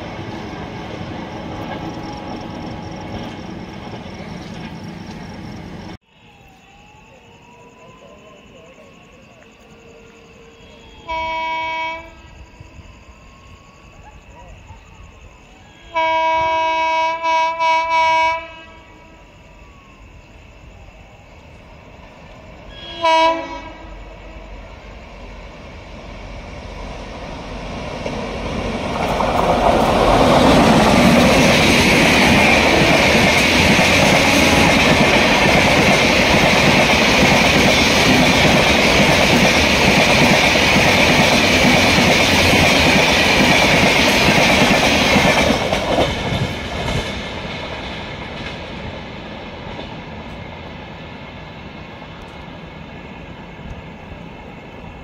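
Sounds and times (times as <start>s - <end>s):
train passing at speed: 0.0s - 55.0s.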